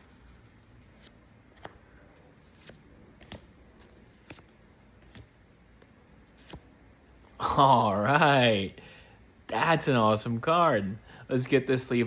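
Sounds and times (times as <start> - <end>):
cards sliding soft clicks: 0.0 - 7.3.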